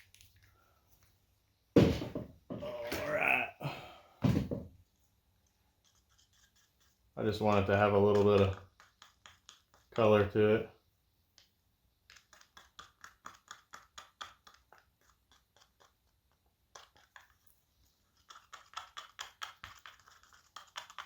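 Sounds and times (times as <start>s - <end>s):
silicone rubber stirred in a cup: 5.3s - 10.5s, 12.0s - 21.0s.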